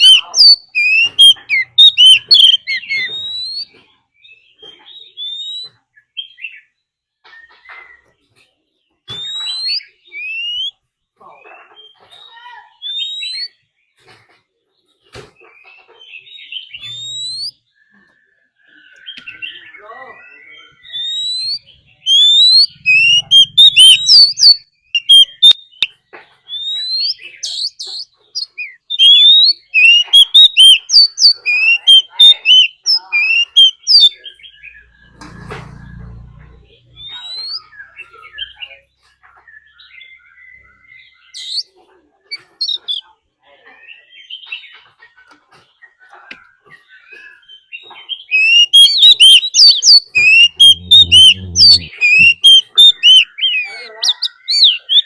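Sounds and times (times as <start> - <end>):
bird singing and whistling: 0.0 - 6.6, 9.1 - 10.8, 11.8 - 13.6, 16.2 - 17.7, 18.7 - 35.2, 36.9 - 38.8, 39.4 - 41.7, 46.9 - 55.0.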